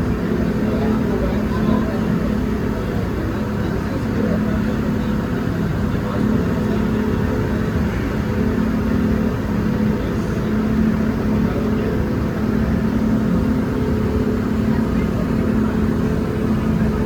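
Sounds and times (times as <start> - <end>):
ferry engine droning: 0.0 - 17.0.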